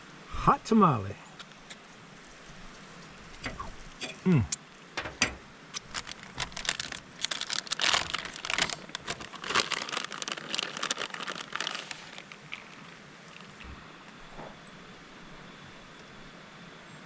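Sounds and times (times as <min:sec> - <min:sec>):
crinkling and rustling: 0:05.0 - 0:14.6.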